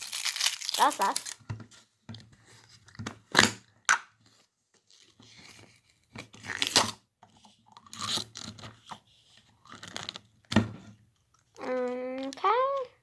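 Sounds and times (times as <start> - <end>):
packaging clicks: 0.0 - 1.4
packaging rustling and tearing: 0.0 - 1.4.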